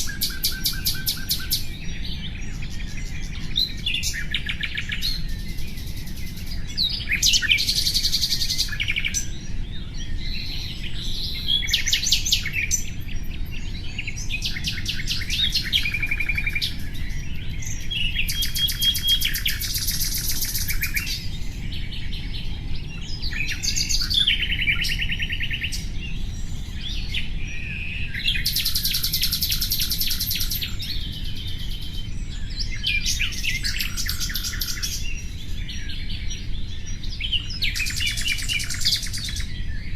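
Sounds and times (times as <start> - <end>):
low background rumble: 0.0 - 28.8
nightingale singing trills: 0.0 - 39.9.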